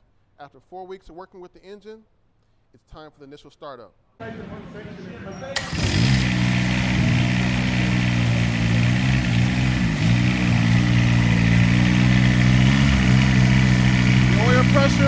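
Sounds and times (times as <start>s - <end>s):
diesel engine running: 5.6s - 15.0s.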